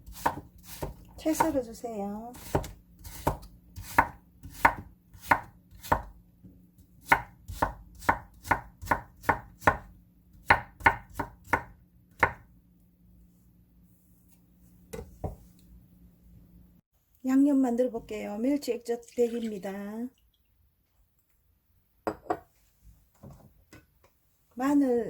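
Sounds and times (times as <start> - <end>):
knife chopping on cutting board: 0.0 - 1.6, 2.4 - 6.1, 7.0 - 12.4.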